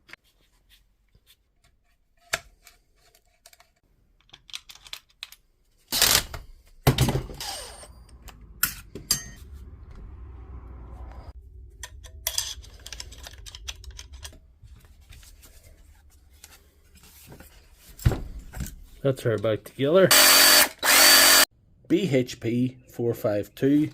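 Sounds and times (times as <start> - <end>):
plastic jigsaw parts clicking: 2.3 - 6.4.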